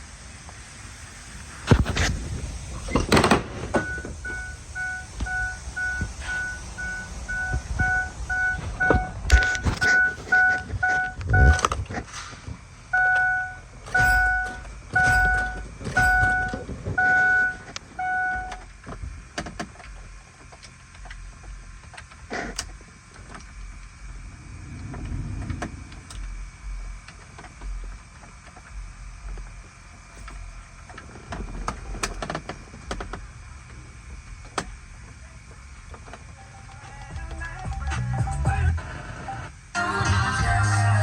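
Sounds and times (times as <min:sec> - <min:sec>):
low whir: 0:00.0 - 0:36.2
electronic chime beeping: 0:03.8 - 0:09.2, 0:09.8 - 0:11.6, 0:13.0 - 0:18.6.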